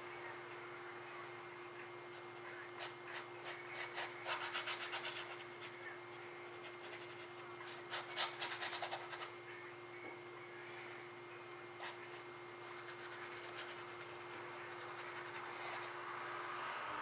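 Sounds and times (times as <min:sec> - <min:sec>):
paintbrush scrubbing canvas: 0:02.8 - 0:09.3, 0:11.8 - 0:16.0.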